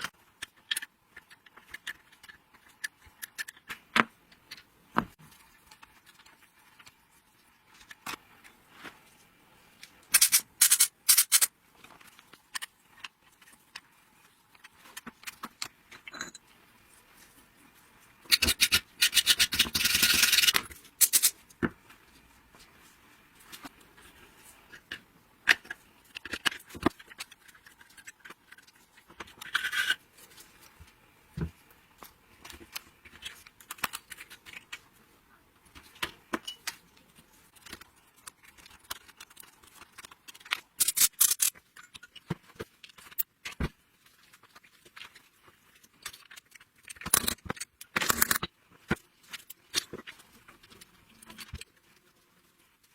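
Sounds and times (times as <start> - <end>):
metal parts rattling scrapes: 29.3 - 30.0, 40.8 - 42.2.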